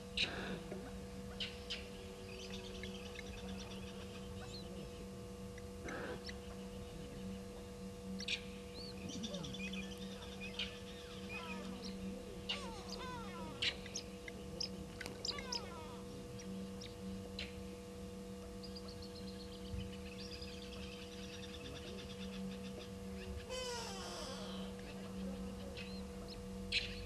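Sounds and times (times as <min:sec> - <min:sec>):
steady electrical hum: 0:00.0 - 0:27.0
birds chirping and whistling: 0:01.4 - 0:04.6, 0:08.2 - 0:17.6, 0:18.6 - 0:27.0
fast high bird trill: 0:15.2 - 0:16.0.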